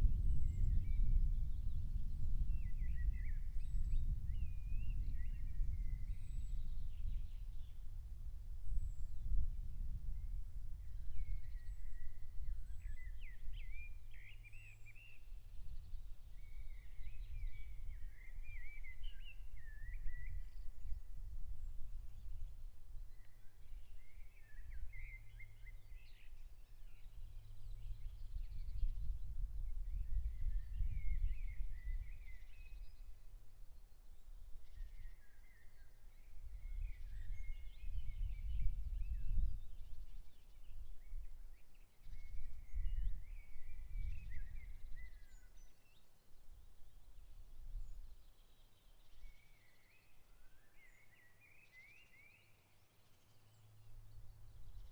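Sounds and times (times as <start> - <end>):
steady low rumbling noise: 0.0 - 1.9
songbird singing: 0.0 - 54.9.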